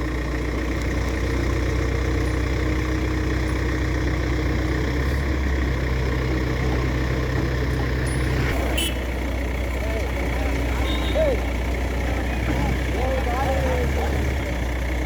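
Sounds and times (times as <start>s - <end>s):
heavy vehicle engine idling: 0.0s - 15.0s.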